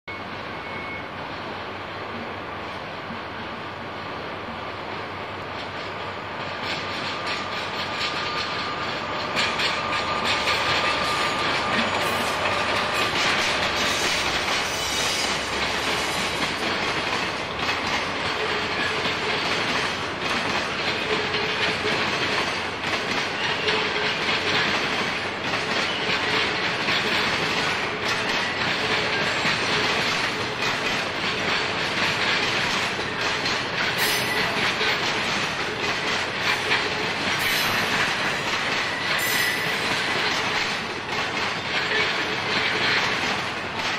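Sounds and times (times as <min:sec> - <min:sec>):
faint wheel squeal: 0:00.1 - 0:01.1
train wheels clacking on rails: 0:04.5 - 0:43.9.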